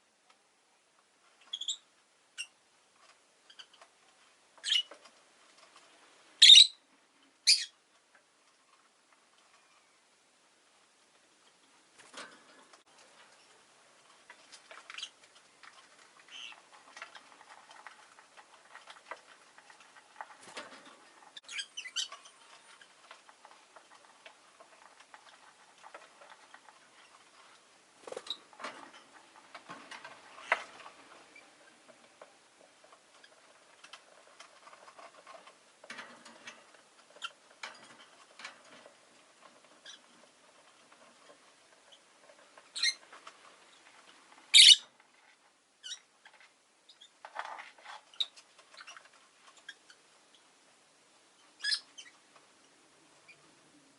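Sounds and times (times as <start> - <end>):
lovebird chirping: 1.5 - 2.5, 4.6 - 4.9, 6.4 - 6.8, 7.4 - 7.8, 21.4 - 22.2, 44.5 - 44.8, 51.6 - 52.2
soft clicks and pattering: 11.1 - 50.5.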